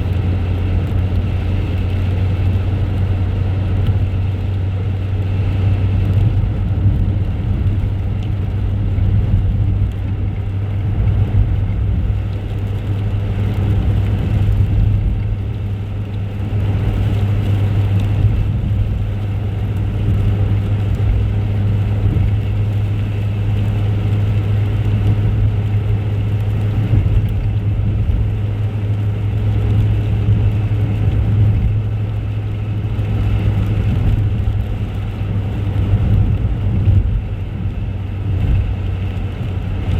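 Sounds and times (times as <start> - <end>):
road noise: 0.0 - 39.9
vehicle engine drone: 0.0 - 39.9.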